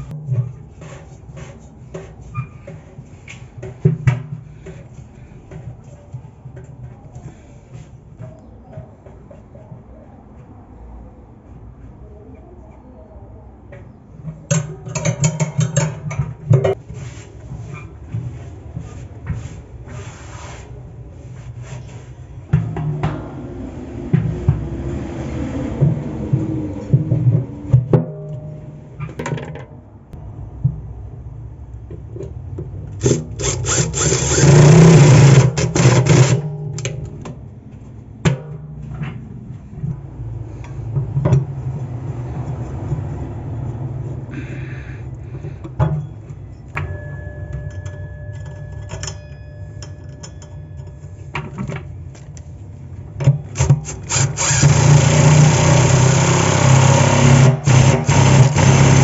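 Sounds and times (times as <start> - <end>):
tools and parts clanking: 13.7 - 19.4, 25.8 - 30.0, 31.9 - 40.0, 45.3 - 59.0
loud rubbing or grinding: 33.0 - 36.6, 53.6 - 59.0.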